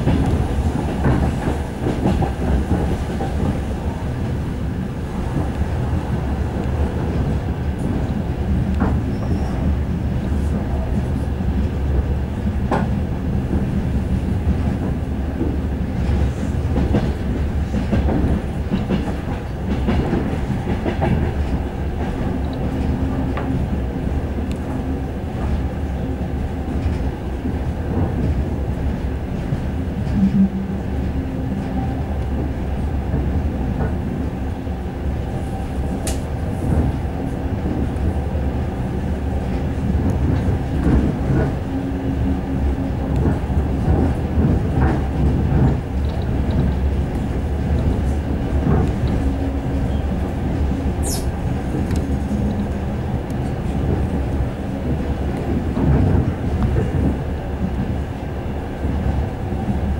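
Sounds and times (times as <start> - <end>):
train rumbling inside carriage: 0.0 - 59.9
sharp high click: 51.0 - 51.3
short high squeal: 51.0 - 51.3.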